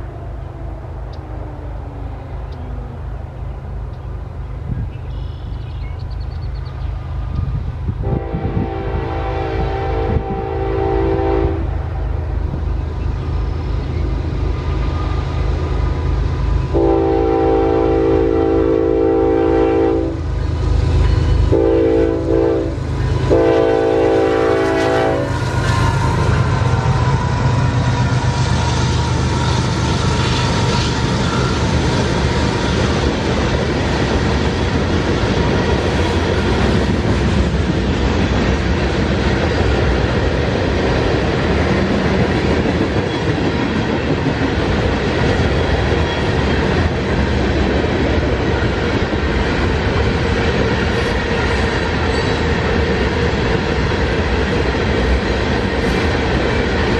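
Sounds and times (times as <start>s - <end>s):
train horn: 8.0s - 12.2s, 16.6s - 20.3s, 20.9s - 32.7s
train wheels clattering: 20.7s - 56.9s.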